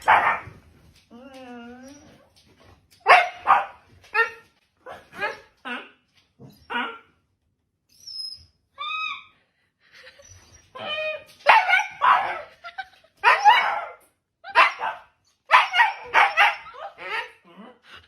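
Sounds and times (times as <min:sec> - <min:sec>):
dog barking loudly: 0:00.0 - 0:00.5, 0:03.0 - 0:04.3, 0:11.4 - 0:12.5, 0:14.5 - 0:16.8
dog whining: 0:01.1 - 0:02.3, 0:10.2 - 0:11.4.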